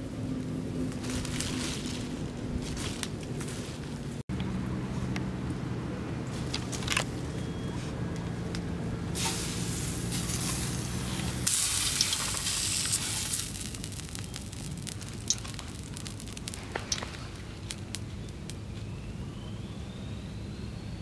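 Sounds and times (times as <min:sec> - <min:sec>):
fish sizzling in a pan: 0:09.2 - 0:17.0.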